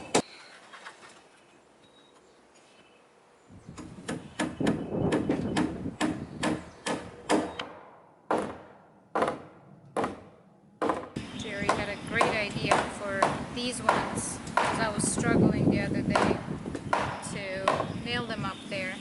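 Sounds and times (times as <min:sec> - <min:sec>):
hammer driving nails into wood: 0:03.8 - 0:14.8.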